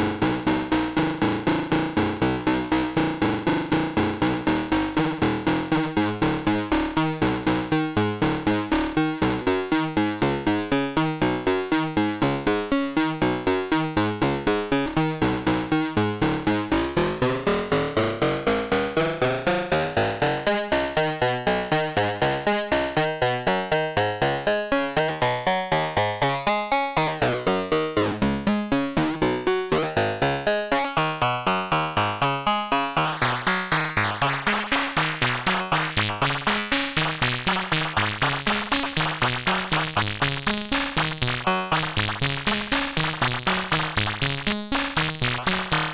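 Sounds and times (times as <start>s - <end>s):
synthesizer pulsing notes: 32.0s - 45.9s.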